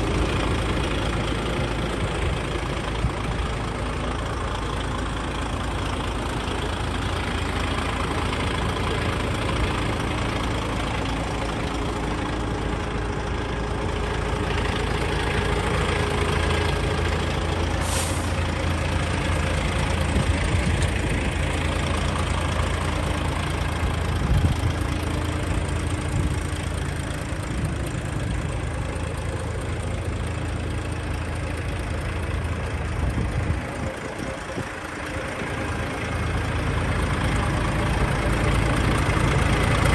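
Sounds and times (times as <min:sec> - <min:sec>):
truck diesel engine idling: 0:00.0 - 0:39.9
air hiss: 0:17.8 - 0:18.4.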